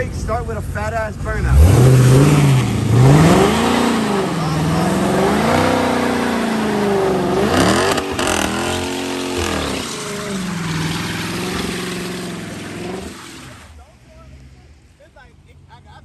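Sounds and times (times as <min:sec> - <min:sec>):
car engine revving: 0:00.0 - 0:14.5.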